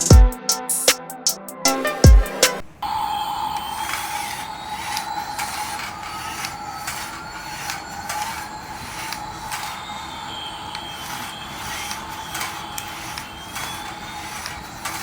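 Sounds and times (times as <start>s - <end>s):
toy motor whirring: 3.6s - 15.0s.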